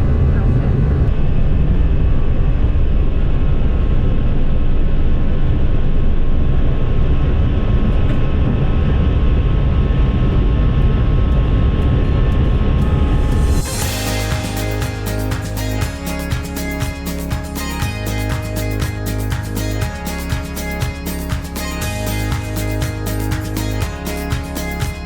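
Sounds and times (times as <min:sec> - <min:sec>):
music: 0:12.3 - 0:25.0.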